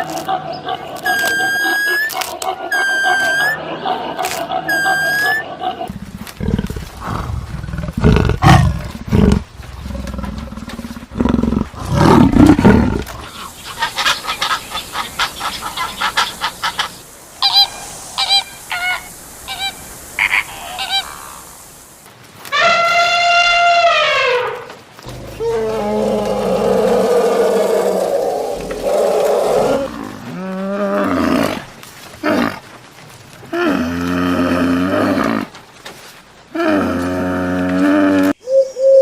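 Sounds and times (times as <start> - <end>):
long falling animal call: 1.0 - 21.9, 22.5 - 32.6
low rough animal calls: 23.5 - 32.6.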